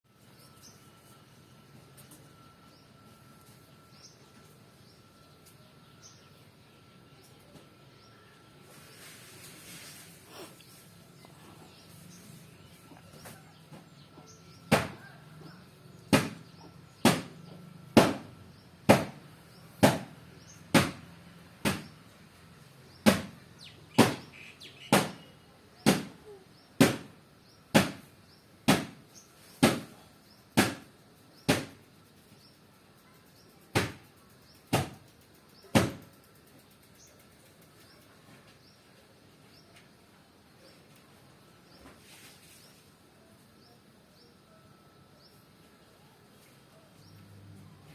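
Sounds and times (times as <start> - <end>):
sharp knocks: 14.7 - 15.0, 16.1 - 17.4, 18.0 - 18.3, 18.9 - 19.2, 19.8 - 21.0, 21.6 - 22.0, 24.0 - 24.3, 26.8 - 27.1, 27.7 - 28.1, 28.7 - 29.0, 30.6 - 30.9, 31.5 - 31.8, 34.7 - 35.0, 35.7 - 36.1.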